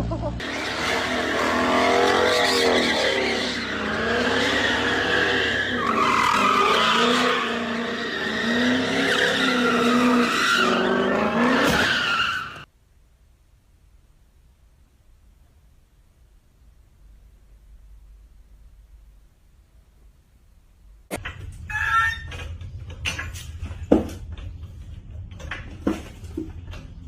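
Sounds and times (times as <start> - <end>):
car tyres squealing: 0.4 - 12.7, 21.6 - 22.5.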